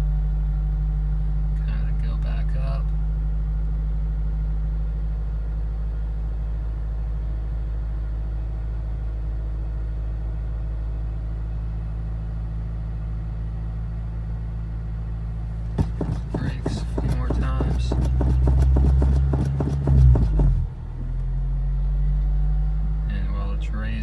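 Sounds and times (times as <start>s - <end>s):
car engine idling: 15.3s - 21.3s.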